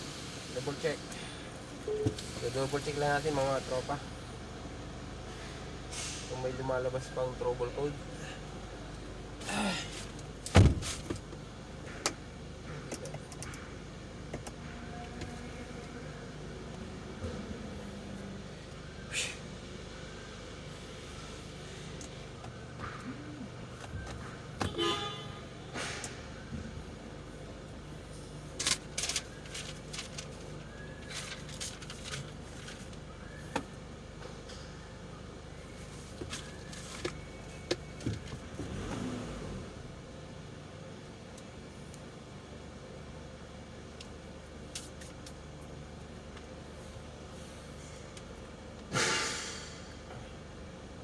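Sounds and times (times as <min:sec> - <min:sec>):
low background hum: 0:00.0 - 0:51.0
low background noise: 0:00.0 - 0:51.0
heavy thump: 0:10.6 - 0:11.1.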